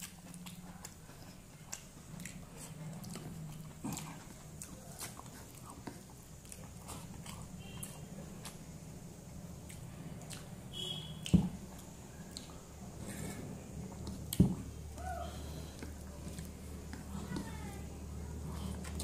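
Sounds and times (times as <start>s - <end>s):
person chewing food: 0.0s - 17.5s
wet mouth clicks and smacks: 11.2s - 12.6s.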